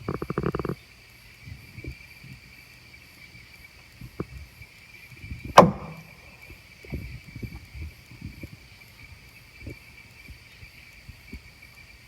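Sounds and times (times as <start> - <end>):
night insects chirring: 0.0 - 12.0
faint low thumps: 5.5 - 7.6
loud sharp knock: 5.6 - 6.1.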